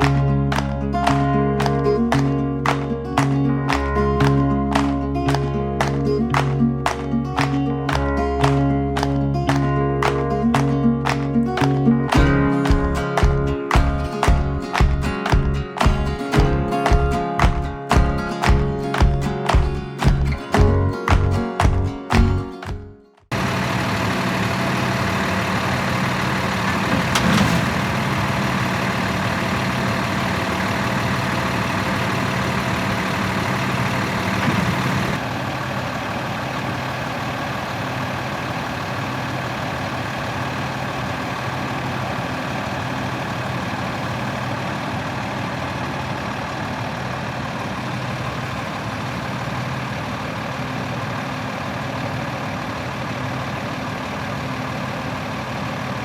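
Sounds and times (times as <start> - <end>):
diesel engine idling: 0.0 - 11.3, 23.3 - 56.0.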